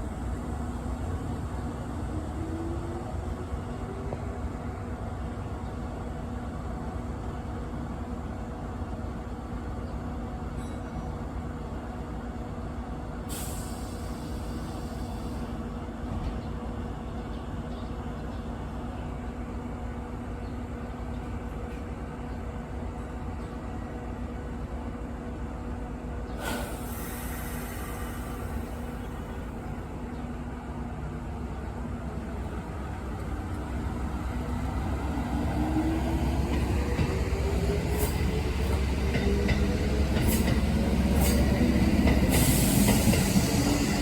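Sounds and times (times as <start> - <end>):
electric train rumble and hum: 0.0 - 44.0
compressed air hiss: 26.4 - 28.9.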